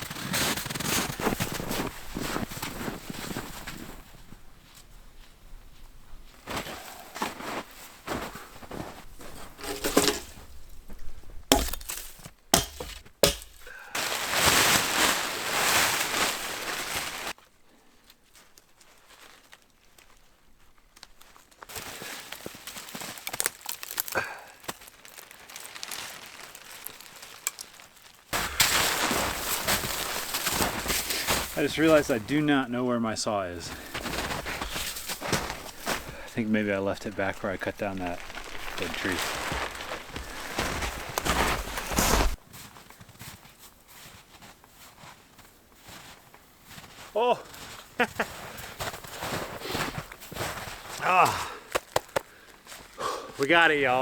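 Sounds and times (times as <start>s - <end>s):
crunching and cracking: 6.4s - 17.4s, 18.4s - 32.4s, 33.6s - 42.4s, 47.3s - 53.0s.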